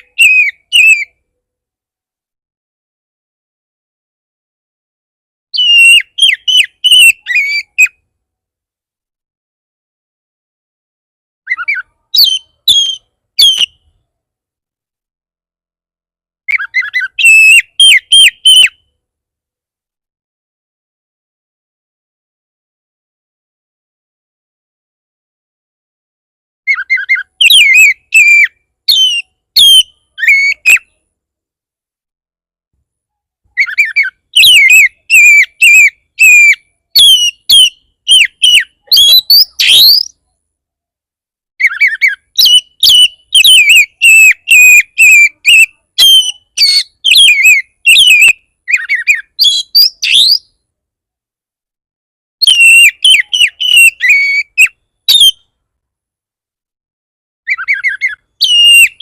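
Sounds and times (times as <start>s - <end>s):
bird singing whistled phrases: 0.0s - 1.2s, 5.5s - 8.0s, 11.5s - 13.9s, 16.5s - 18.9s, 26.7s - 30.9s, 33.6s - 40.2s, 41.6s - 50.6s, 52.4s - 55.5s, 57.5s - 59.0s.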